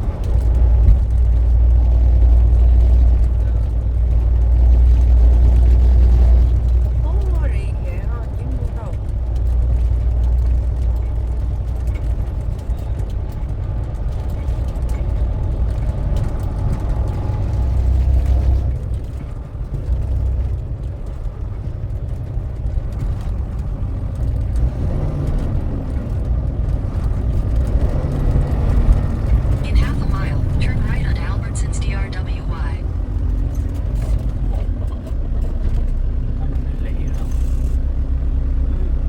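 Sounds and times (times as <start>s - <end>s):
road noise: 0.0s - 39.0s
truck engine rumble: 0.0s - 39.0s.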